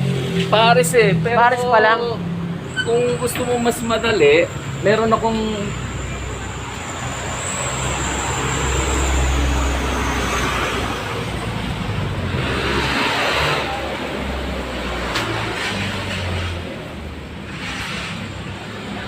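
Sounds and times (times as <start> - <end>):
vehicle engine and road noise: 0.0 - 19.0
vehicle passing: 0.0 - 19.0.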